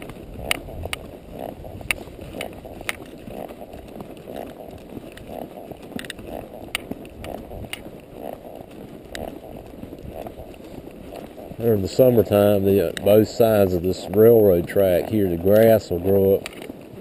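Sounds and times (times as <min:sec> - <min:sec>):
sharp clicks: 0:00.0 - 0:01.1, 0:01.8 - 0:08.0, 0:08.7 - 0:09.5, 0:12.8 - 0:13.5, 0:16.4 - 0:16.7
horse hoof footfalls walking: 0:00.0 - 0:17.0.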